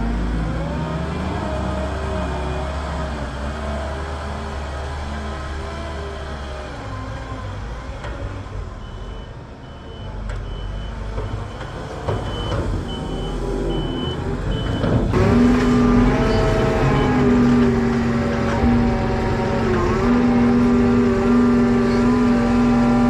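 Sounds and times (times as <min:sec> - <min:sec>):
reversing alarm beeping: 0:08.8 - 0:17.6
farm machine engine running: 0:12.3 - 0:23.0.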